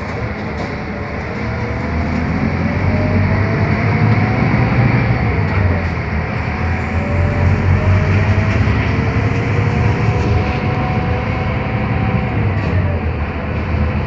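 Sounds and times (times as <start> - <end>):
bus drivetrain hum with whine: 0.0 - 14.0.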